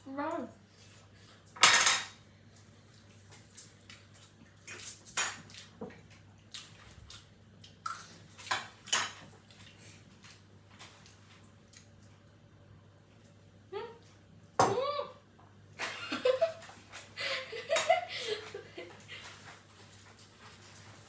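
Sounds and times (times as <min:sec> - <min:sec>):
cutlery clinking on dishes: 0:01.6 - 0:02.2.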